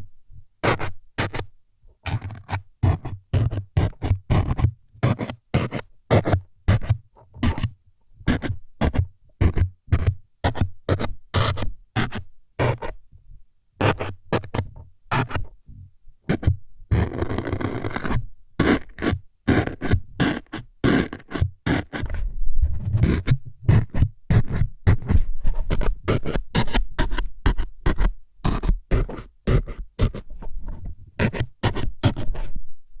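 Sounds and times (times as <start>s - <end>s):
scratchy jabs at microphone: 16.3s - 32.6s
scraping rub on microphone: 21.0s - 32.6s.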